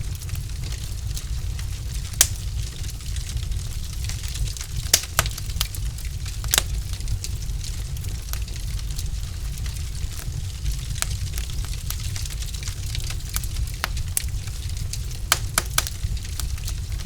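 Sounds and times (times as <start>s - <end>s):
fire crackling and popping: 0.0s - 17.0s
logs burning in a fireplace: 0.0s - 17.0s.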